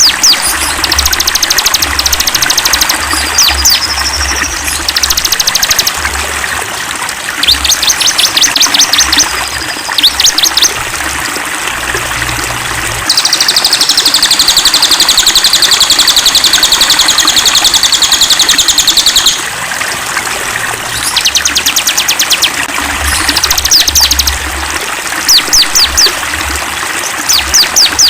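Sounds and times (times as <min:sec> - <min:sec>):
songbirds singing: 0:00.0 - 0:06.4, 0:07.4 - 0:10.8, 0:12.7 - 0:19.5, 0:20.8 - 0:24.4, 0:25.2 - 0:26.2, 0:27.0 - 0:28.0
flowing stream: 0:00.0 - 0:28.0.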